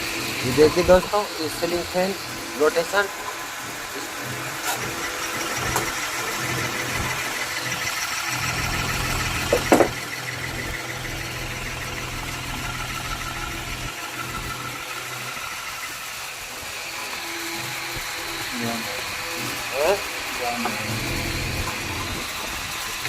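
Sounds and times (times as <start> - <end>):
ceiling fan motor humming: 0.0 - 23.0.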